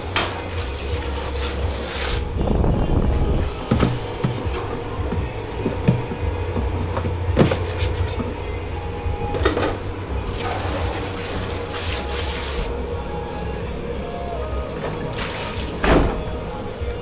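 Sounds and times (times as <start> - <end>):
hissing water spray: 0.0 - 2.4, 10.2 - 12.8, 14.4 - 16.5
low machine hum: 0.0 - 17.0
crockery and pans knocking: 3.6 - 8.4.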